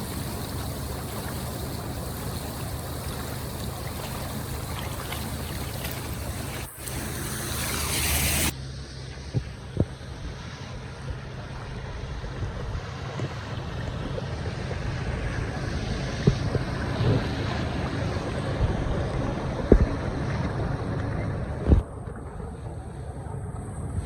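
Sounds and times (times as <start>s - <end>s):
floodwater rushing into drain: 0.0s - 8.5s.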